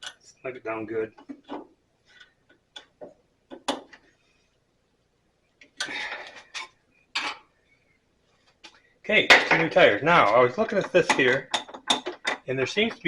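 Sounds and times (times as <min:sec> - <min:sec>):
clattering rattle: 0:10.7 - 0:13.0.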